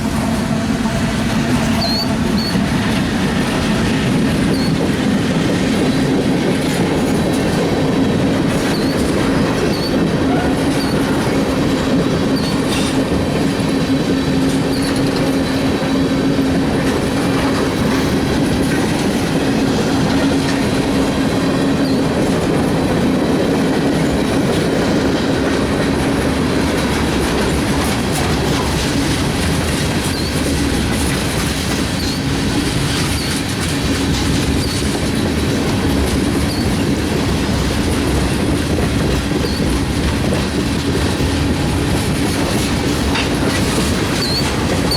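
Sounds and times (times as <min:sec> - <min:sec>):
freight train rumbling on rails: 0:00.0 - 0:44.9
wheel squeal: 0:01.7 - 0:02.6, 0:04.5 - 0:04.9, 0:08.6 - 0:11.4, 0:12.2 - 0:13.0, 0:14.6 - 0:15.4, 0:31.6 - 0:33.4, 0:34.5 - 0:34.9, 0:36.4 - 0:36.8, 0:39.4 - 0:39.7, 0:43.1 - 0:44.9.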